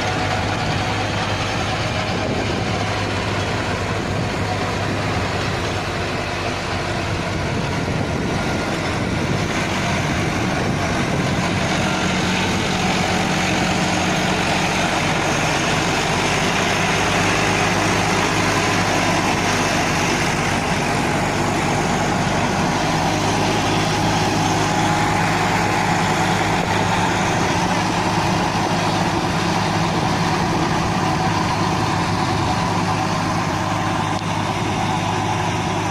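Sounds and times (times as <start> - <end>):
heavy vehicle engine running: 0.0 - 35.9.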